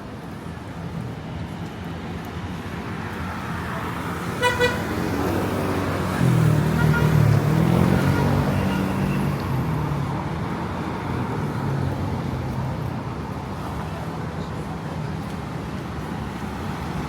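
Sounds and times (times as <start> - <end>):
street traffic passing: 0.0 - 17.0
vehicle horn tooting: 4.4 - 4.9, 6.8 - 7.2.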